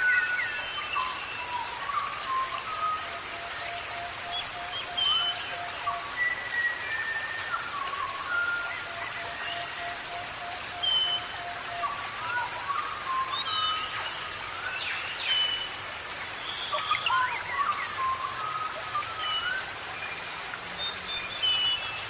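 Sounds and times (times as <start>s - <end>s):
birds whistling and chirping: 0.0s - 22.0s
rain hissing: 10.2s - 22.0s.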